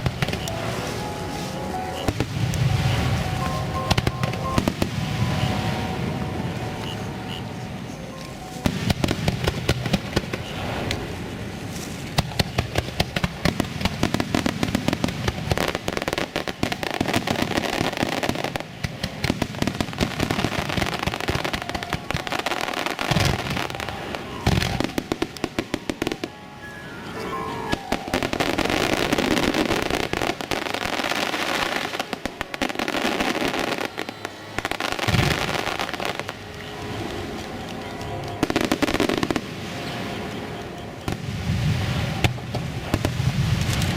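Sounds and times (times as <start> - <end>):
fireworks crackling and popping: 0.0 - 6.2, 8.2 - 26.7, 27.7 - 43.9
descending firework whistle: 0.0 - 10.6, 19.6 - 42.3.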